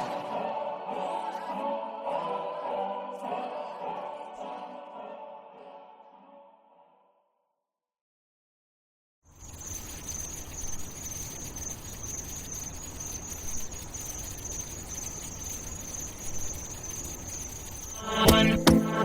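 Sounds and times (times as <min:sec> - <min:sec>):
insect-like chirring: 0:09.3 - 0:19.0.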